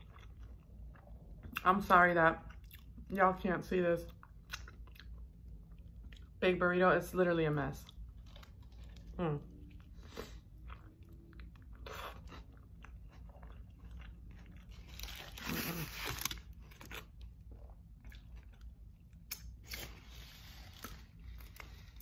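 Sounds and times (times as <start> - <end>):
chewing with wet mouth clicks: 0.0 - 1.7, 2.4 - 3.0, 4.0 - 6.3.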